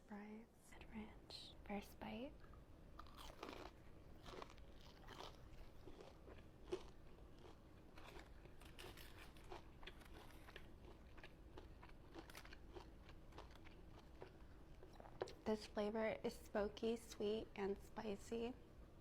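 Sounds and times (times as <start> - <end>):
person chewing crunchy food: 3.0 - 15.4.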